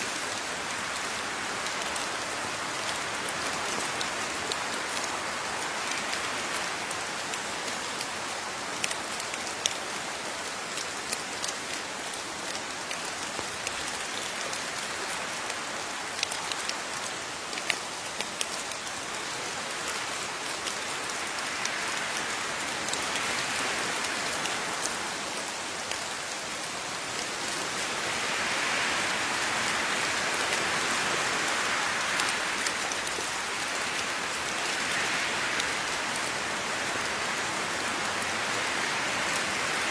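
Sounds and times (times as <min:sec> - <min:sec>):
raindrops ticking on a surface: 0:00.0 - 0:39.9
steady rain falling: 0:00.0 - 0:39.9.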